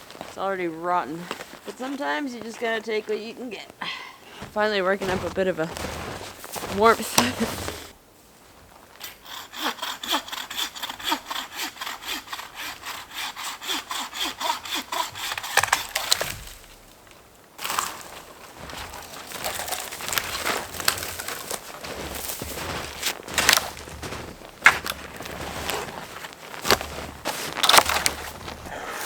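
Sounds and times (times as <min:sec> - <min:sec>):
wood cracking and crunching: 0:04.3 - 0:08.0, 0:14.5 - 0:29.0
bucksaw cutting wood: 0:04.5 - 0:07.9, 0:09.0 - 0:16.9, 0:17.6 - 0:29.0.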